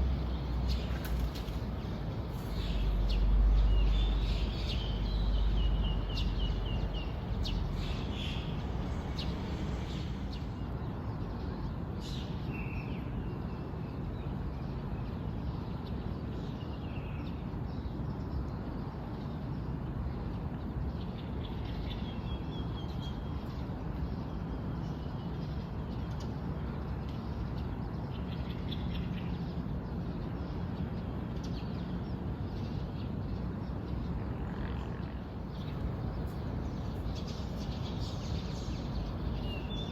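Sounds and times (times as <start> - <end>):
small birds chirping: 0.0 - 10.7, 35.4 - 39.9
outdoor background rush: 0.0 - 39.9.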